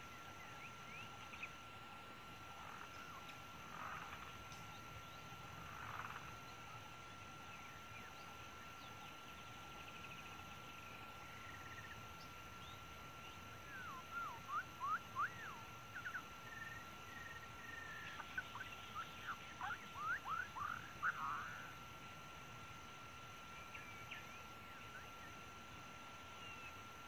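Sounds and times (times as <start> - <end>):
high-pitched animal drone: 13.6 - 21.8
swooping animal calls: 13.6 - 21.8.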